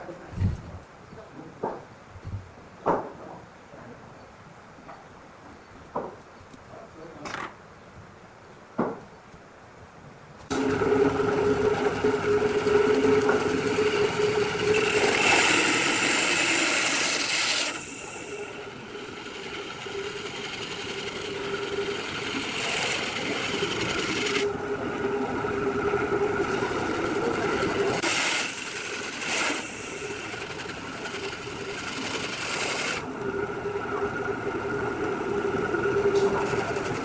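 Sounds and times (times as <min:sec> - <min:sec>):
motor hum: 0:10.5 - 0:37.0
wood being cut hiss: 0:10.5 - 0:37.0.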